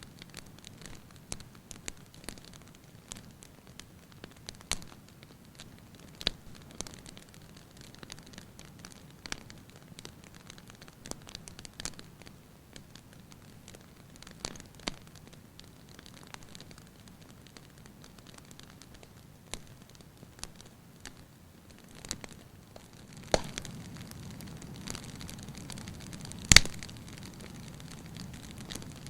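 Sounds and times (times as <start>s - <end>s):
soft steady hiss: 0.0s - 29.0s
wood fire crackling: 0.0s - 29.0s
sharp fire pops: 20.4s - 29.0s.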